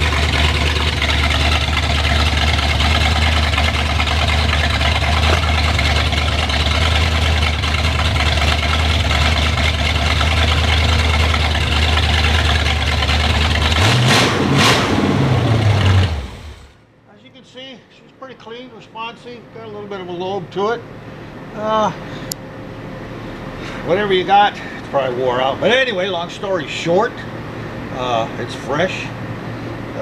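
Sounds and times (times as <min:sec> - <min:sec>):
car engine idling and revving: 0:00.0 - 0:16.9, 0:20.8 - 0:30.0.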